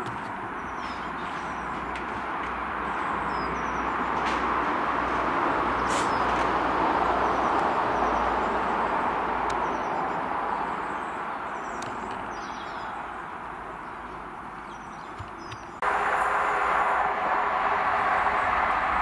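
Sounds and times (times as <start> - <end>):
birds chirping: 0.0 - 19.0
diesel train rumbling past: 0.5 - 11.6, 15.8 - 19.0.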